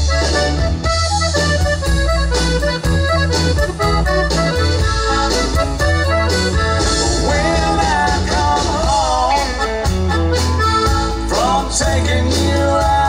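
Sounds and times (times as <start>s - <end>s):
accordion melody: 0.0s - 13.0s
bass line: 0.0s - 13.0s
drum beat: 6.1s - 10.0s.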